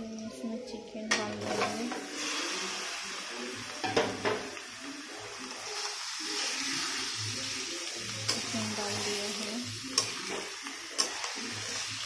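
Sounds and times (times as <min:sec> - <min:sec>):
chicken sizzling in hot oil: 0:01.3 - 0:12.0.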